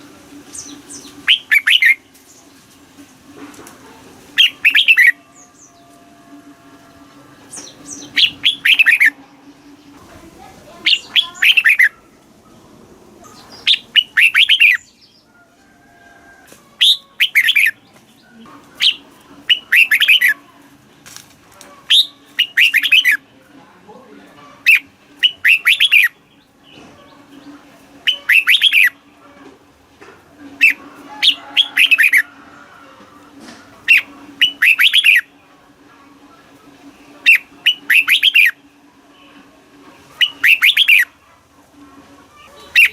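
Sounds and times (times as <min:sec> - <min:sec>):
bulbul singing whistled notes: 0:00.5 - 0:02.1, 0:04.4 - 0:05.9, 0:07.5 - 0:09.2, 0:13.6 - 0:15.0, 0:16.8 - 0:17.8, 0:18.8 - 0:20.4, 0:21.9 - 0:23.2, 0:24.7 - 0:26.2, 0:28.0 - 0:29.0, 0:33.9 - 0:35.3, 0:37.3 - 0:38.6, 0:40.2 - 0:41.1.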